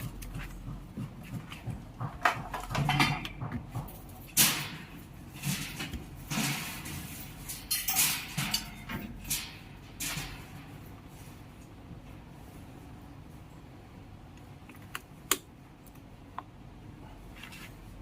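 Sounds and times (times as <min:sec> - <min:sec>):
tools and metal parts clicking: 0:02.6 - 0:10.9.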